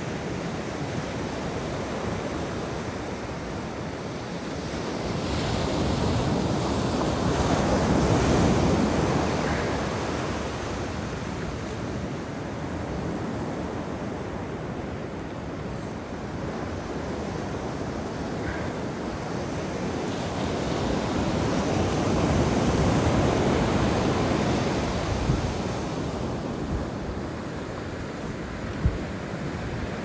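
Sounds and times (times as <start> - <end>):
sea waves washing ashore: 0.0 - 30.0
wind on microphone: 20.0 - 30.0.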